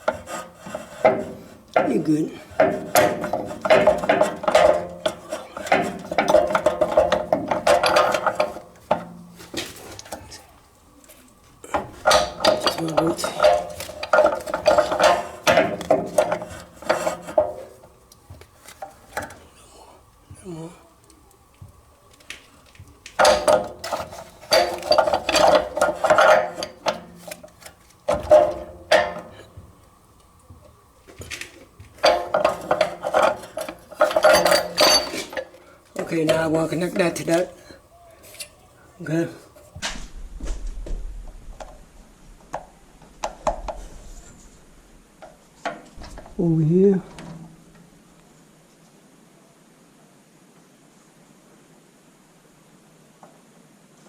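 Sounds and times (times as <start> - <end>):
scraping on plumbing fittings: 0.0 - 39.8
tools clinking and rattling: 0.0 - 39.8
small metal clinks: 20.9 - 39.7.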